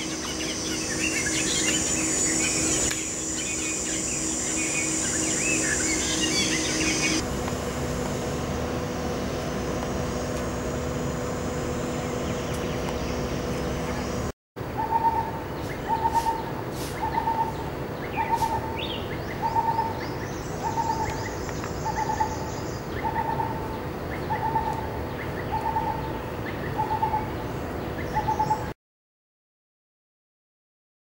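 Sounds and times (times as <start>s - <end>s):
bird hooting: 0.0s - 7.2s, 12.2s - 27.3s
faint high bird chirps: 0.0s - 7.2s, 14.8s - 27.3s
steady hum: 0.0s - 28.7s.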